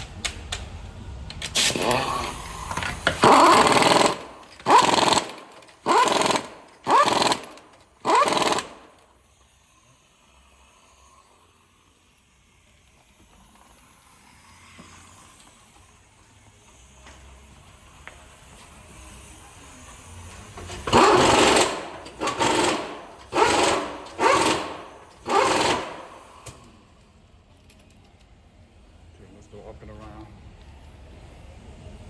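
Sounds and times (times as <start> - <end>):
impact wrench whining and hammering: 1.3 - 9.8, 16.5 - 28.3.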